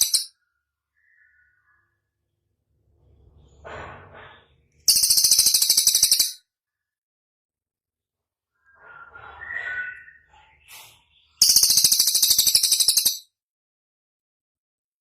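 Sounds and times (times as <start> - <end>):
faint chirps: 0.0 - 3.6
songbird fast trill: 4.9 - 6.4, 11.4 - 13.2.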